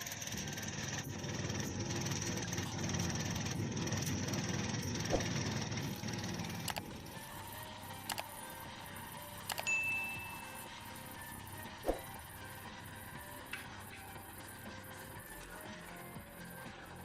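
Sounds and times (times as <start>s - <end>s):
heavy machine engine rumbling: 0.0s - 9.5s.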